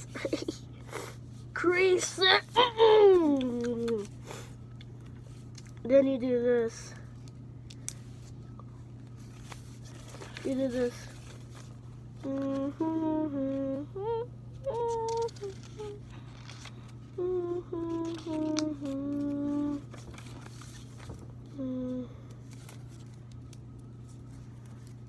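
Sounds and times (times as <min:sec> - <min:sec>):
low background hum: 0:00.0 - 0:25.0
child humming a tune: 0:12.2 - 0:16.2, 0:17.1 - 0:19.9, 0:21.5 - 0:22.2.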